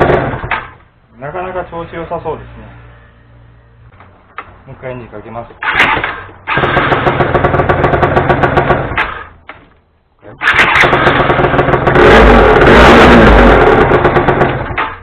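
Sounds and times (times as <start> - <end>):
scooter engine starting and revving: 0.0 - 0.8, 5.6 - 9.4, 10.3 - 15.0.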